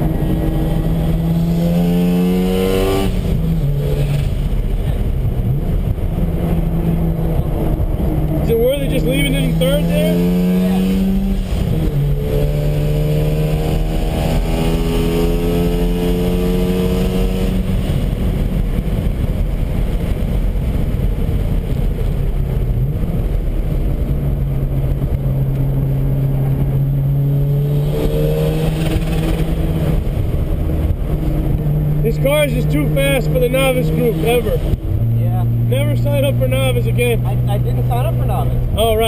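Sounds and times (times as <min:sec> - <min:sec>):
road and wind noise: 0:00.0 - 0:39.0
rotary engine accelerating: 0:00.0 - 0:39.0.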